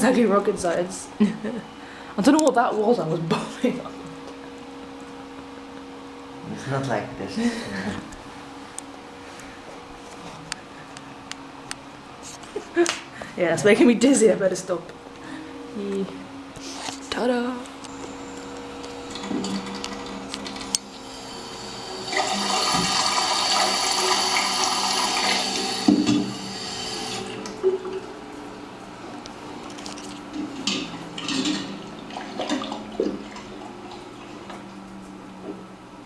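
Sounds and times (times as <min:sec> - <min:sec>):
steady low hum: 0:00.0 - 0:36.0
water rushing: 0:21.0 - 0:27.4, 0:31.2 - 0:34.4.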